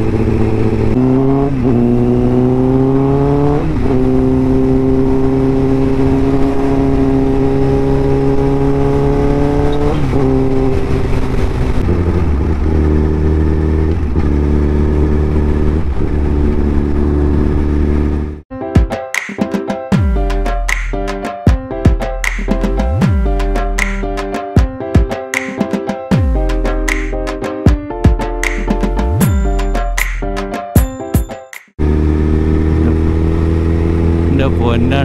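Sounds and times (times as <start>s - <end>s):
motorcycle engine accelerating: 0.0s - 18.4s, 31.8s - 35.0s.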